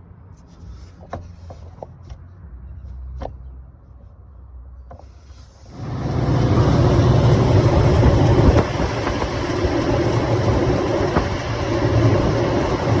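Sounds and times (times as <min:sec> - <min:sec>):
car engine idling: 0:05.7 - 0:13.0.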